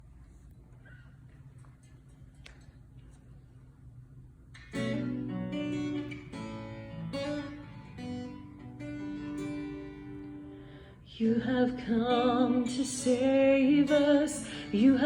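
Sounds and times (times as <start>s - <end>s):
acoustic guitar strumming chords: 4.7s - 15.0s.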